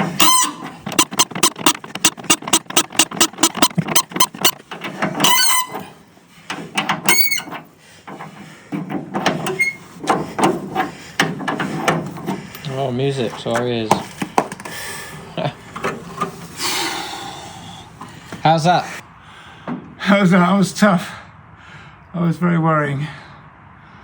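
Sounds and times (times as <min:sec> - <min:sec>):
bolt clicking: 0:00.0 - 0:12.7, 0:15.7 - 0:16.6
metal on metal squeals: 0:00.0 - 0:13.6
scattered clicks and knocks: 0:00.0 - 0:14.8, 0:15.4 - 0:16.6.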